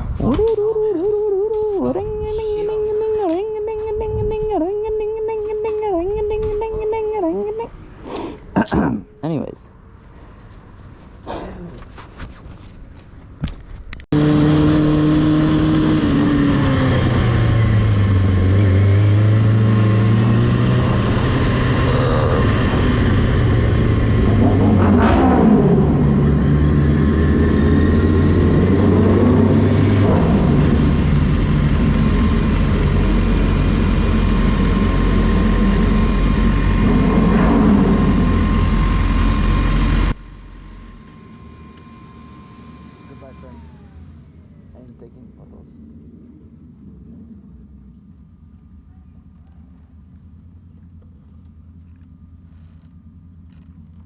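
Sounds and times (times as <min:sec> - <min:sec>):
motorcycle engine running: 0:14.1 - 0:42.4, 0:43.0 - 0:54.0.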